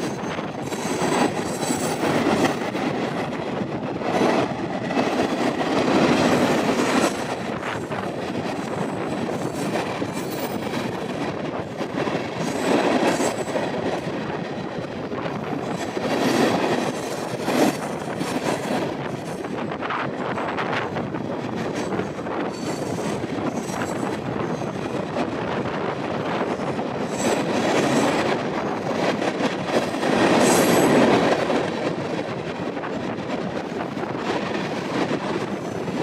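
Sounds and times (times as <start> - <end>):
freight train wheels rumbling on rails: 0.0 - 36.0.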